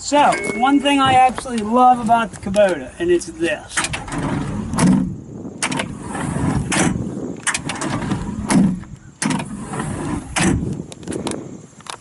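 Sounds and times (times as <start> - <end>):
door rattling and handling: 3.8 - 6.0, 6.6 - 11.3.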